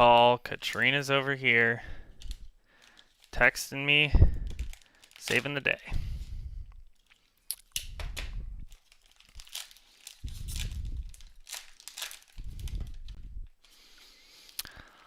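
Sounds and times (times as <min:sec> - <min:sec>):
plastic packaging crinkling and tearing: 0:02.1 - 0:05.8, 0:06.8 - 0:13.8.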